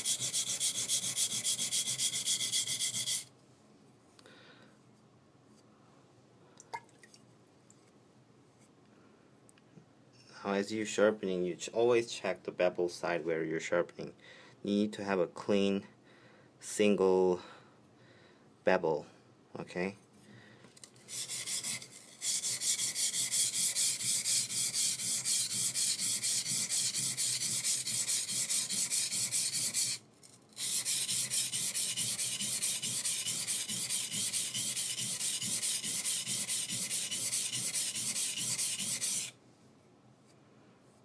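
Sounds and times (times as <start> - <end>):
knife scraping on whetstone: 0.0 - 3.3, 21.0 - 39.3.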